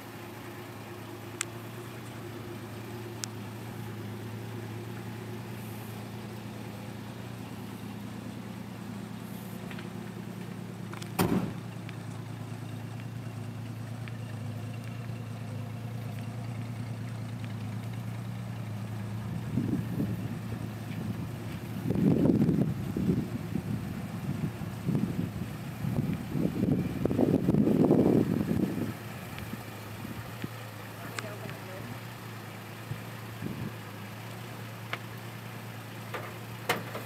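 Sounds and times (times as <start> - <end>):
car engine idling: 0.0 - 37.0
thump: 11.1 - 11.7.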